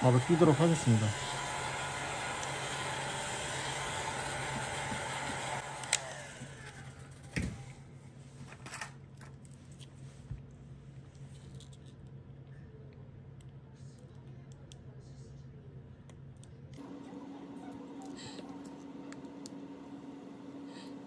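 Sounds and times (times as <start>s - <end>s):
hot-air blower rushing: 0.0s - 7.7s.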